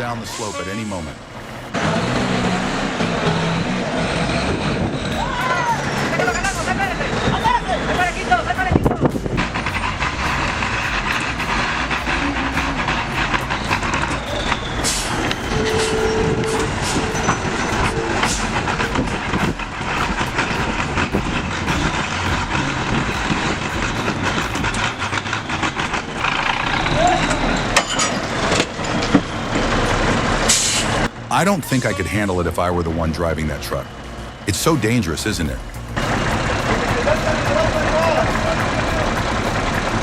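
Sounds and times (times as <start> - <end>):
people's voices: 0.0 - 28.9, 31.2 - 40.0
truck engine running under load: 0.0 - 31.8, 32.4 - 40.0
knocks and clatter: 8.8 - 31.2.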